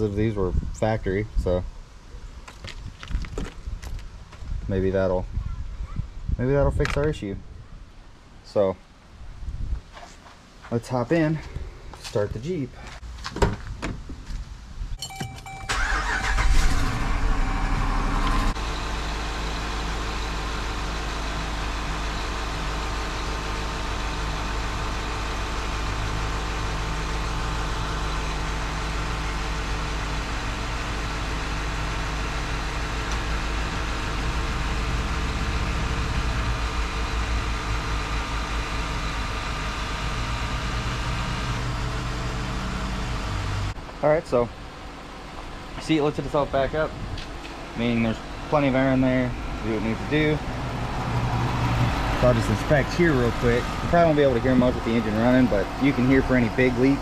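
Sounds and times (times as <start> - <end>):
car engine starting and idling: 15.0 - 57.0.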